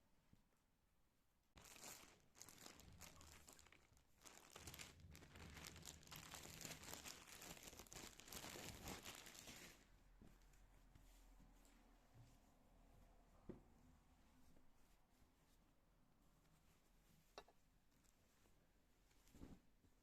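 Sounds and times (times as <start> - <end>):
plastic packaging crinkling: 1.6 - 9.8.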